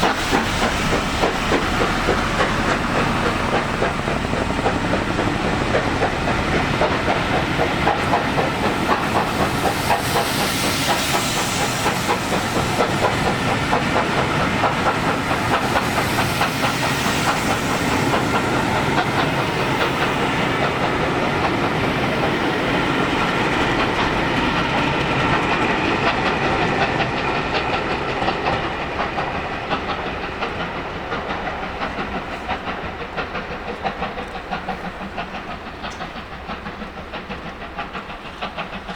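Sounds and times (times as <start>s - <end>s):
train wheels clattering on rails: 0.0s - 38.9s.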